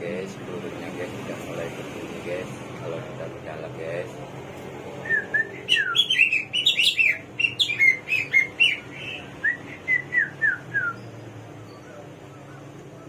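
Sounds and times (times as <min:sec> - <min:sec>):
songbird singing whistled notes: 0:05.0 - 0:13.0.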